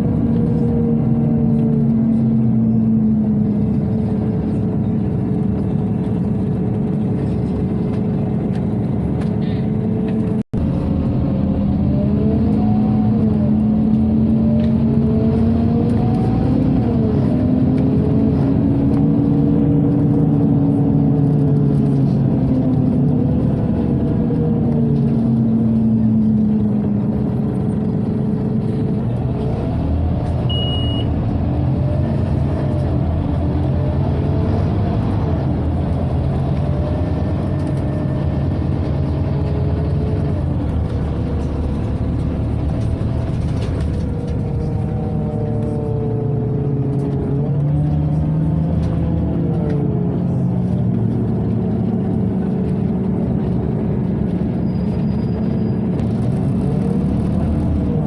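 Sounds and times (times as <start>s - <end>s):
bus diesel engine drone: 0.0s - 58.0s
short high beep: 30.5s - 31.1s.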